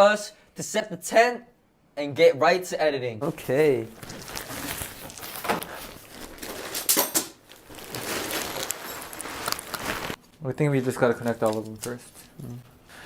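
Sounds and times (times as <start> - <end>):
tent parts rustling: 3.2 - 12.7.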